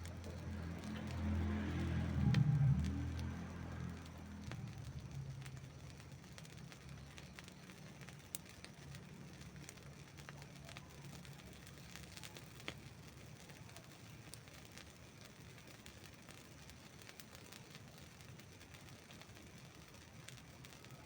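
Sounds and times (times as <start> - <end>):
low rumble: 0.0 - 6.3
campfire crackling and snapping: 0.0 - 21.0.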